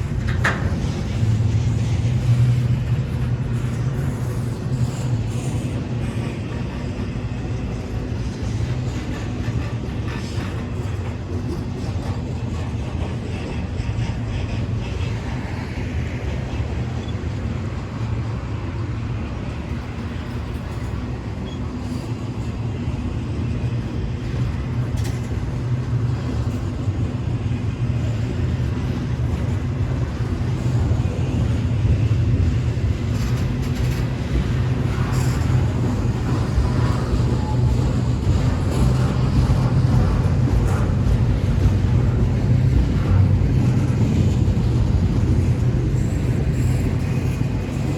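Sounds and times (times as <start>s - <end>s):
freight train rumbling past: 0.0s - 47.9s.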